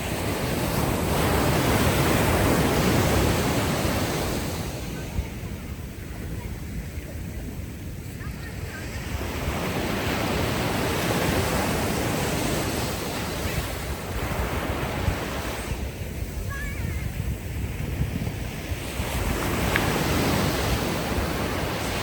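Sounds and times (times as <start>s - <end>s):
ocean waves washing ashore: 0.0s - 22.0s
wind rumble on microphone: 0.0s - 22.0s.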